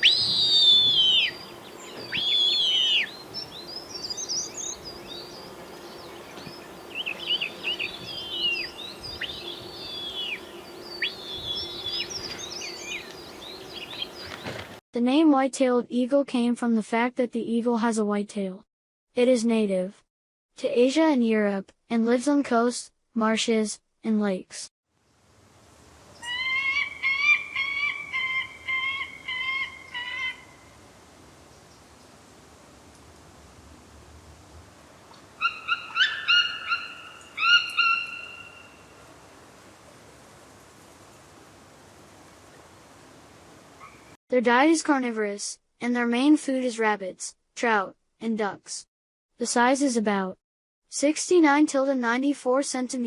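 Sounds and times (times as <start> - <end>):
eagle yelping calls: 0.0 - 3.2, 6.9 - 12.2, 26.2 - 30.6, 35.4 - 38.9
faint steady hum: 0.0 - 14.2
background hiss: 0.0 - 14.6, 25.0 - 44.2
birds chirping: 0.0 - 14.8, 35.4 - 39.0.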